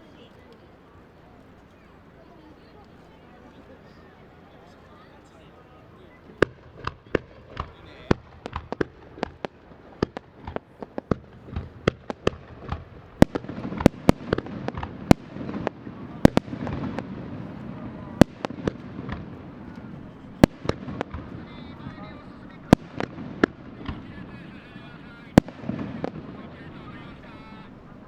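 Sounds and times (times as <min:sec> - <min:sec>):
fireworks bursting: 0:06.2 - 0:28.0
rumbling haze: 0:06.5 - 0:28.0.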